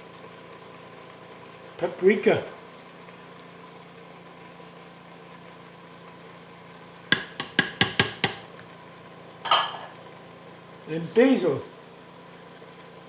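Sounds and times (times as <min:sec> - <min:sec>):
spice container tapping: 0:07.1 - 0:08.4.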